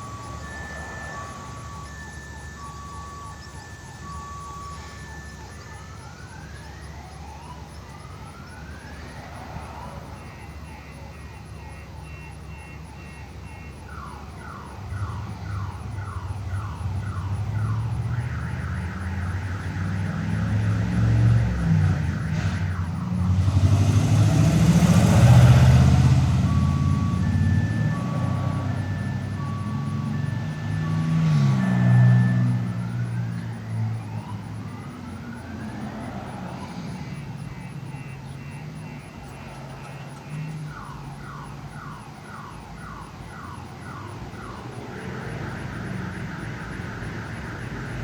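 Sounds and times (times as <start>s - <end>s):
motor vehicle passing: 0.0s - 5.8s, 14.9s - 40.9s, 43.3s - 48.0s
distant electronic alarm siren: 0.0s - 48.0s.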